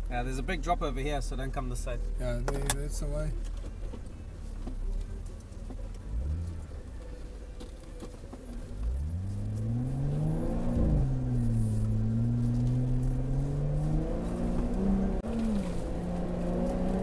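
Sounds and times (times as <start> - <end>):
car engine revving: 4.9 - 7.6, 8.4 - 17.0.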